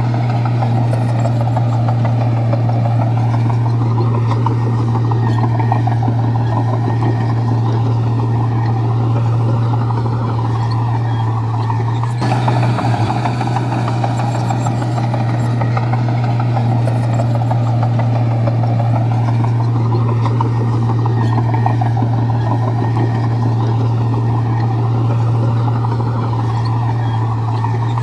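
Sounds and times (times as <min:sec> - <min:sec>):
bulldozer diesel engine droning: 0:00.0 - 0:28.0
mechanical clattering: 0:12.0 - 0:17.9.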